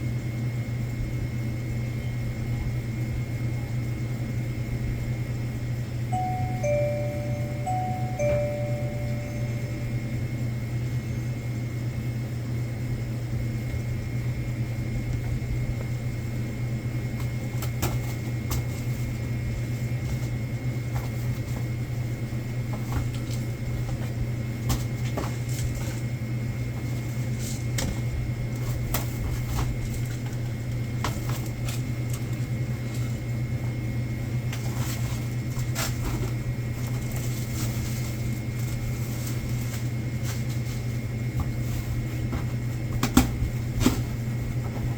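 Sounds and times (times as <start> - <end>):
low machine hum: 0.0 - 17.2
faint high whine: 6.1 - 11.3.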